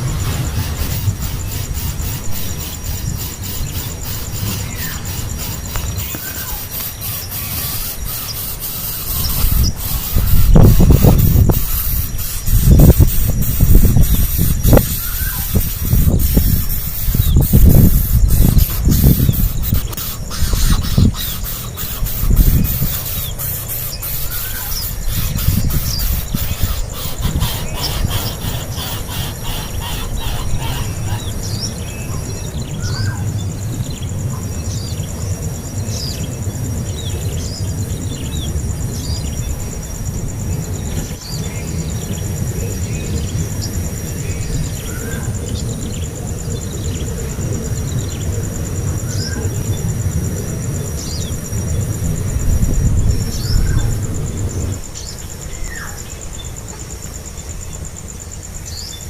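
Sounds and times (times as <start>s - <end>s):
nestling birds squeaking: 0.0s - 33.4s.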